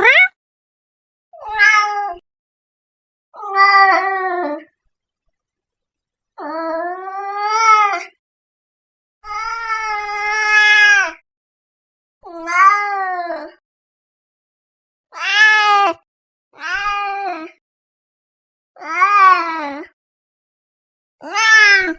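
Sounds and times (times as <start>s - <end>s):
cat meowing: 0.0s - 0.4s, 1.4s - 2.2s, 15.2s - 16.0s, 16.6s - 17.2s, 21.2s - 21.9s.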